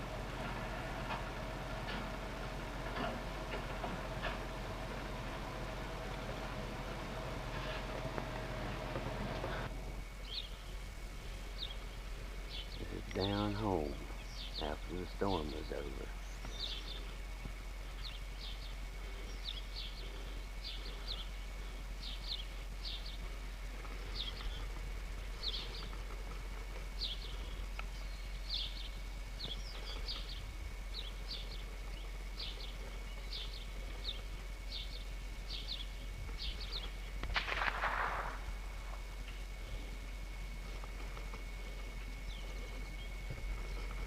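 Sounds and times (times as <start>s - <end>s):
bird chirping: 7.2s - 37.2s, 40.6s - 44.0s
loud noisy burst: 37.2s - 39.1s.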